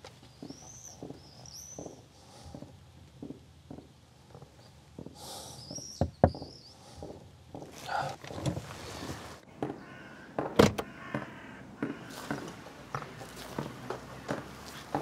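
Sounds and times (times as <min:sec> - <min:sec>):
small bird chirping: 0:00.2 - 0:02.6, 0:04.5 - 0:07.1
soft rustling: 0:06.9 - 0:09.4.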